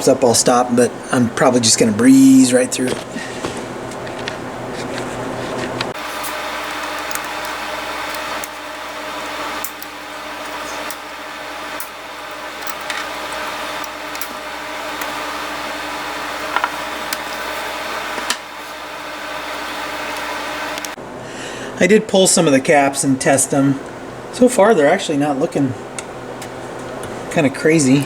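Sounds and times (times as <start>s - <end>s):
constant low hum: 0.0s - 28.0s
steady whirring noise: 0.0s - 28.0s
flush cutters snipping leads: 2.8s - 21.0s.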